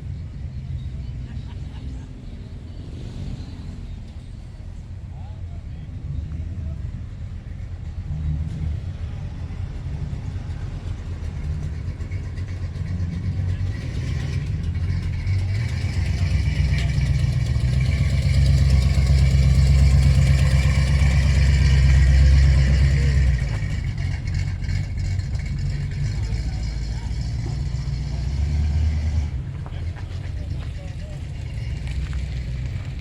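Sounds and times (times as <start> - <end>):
car engine rumbling: 0.0 - 33.0.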